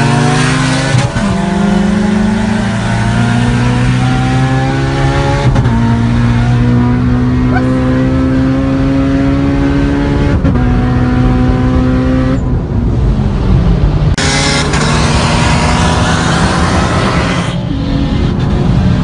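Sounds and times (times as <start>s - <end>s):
car engine at high revs: 0.0s - 19.0s
loud rushing noise: 12.6s - 19.0s.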